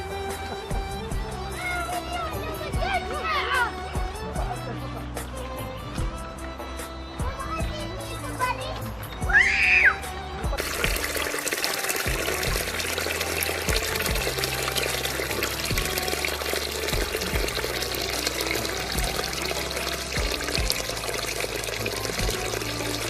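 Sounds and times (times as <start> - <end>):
music: 0.0 - 23.0
water running and splashing: 10.5 - 23.0.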